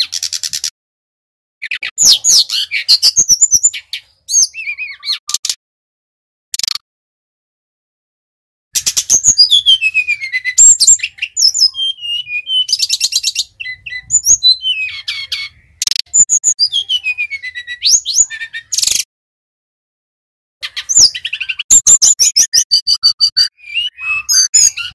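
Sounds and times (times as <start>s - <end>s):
bird singing trills and whistles: 0.0s - 0.7s, 1.6s - 5.6s, 8.8s - 19.1s, 20.6s - 24.9s.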